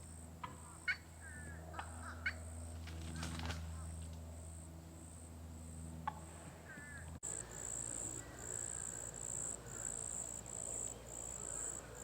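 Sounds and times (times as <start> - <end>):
insects pulsing chorus: 6.7 - 12.0.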